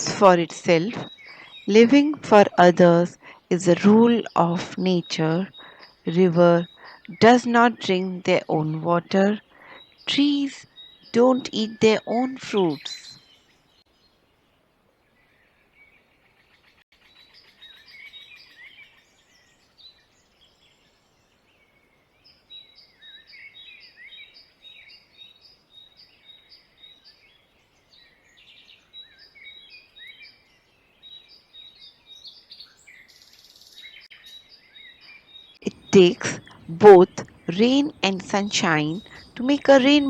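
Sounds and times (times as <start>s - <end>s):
birds chirping and singing: 0.0s - 14.2s, 15.2s - 40.0s.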